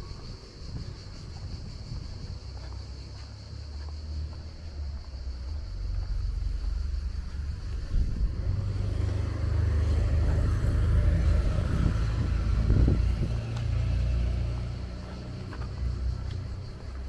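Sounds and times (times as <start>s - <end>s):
car passing close by: 5.8s - 16.3s.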